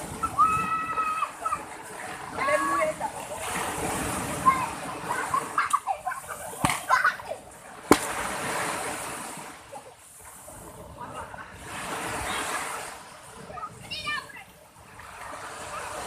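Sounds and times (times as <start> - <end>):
ocean waves breaking on beach: 0.0 - 16.0
sharp cracks: 7.8 - 8.3.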